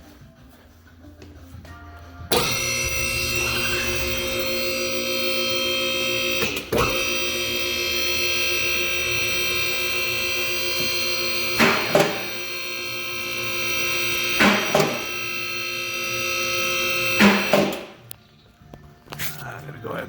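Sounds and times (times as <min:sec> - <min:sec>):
hydraulic pump motor whine: 0:02.3 - 0:18.0.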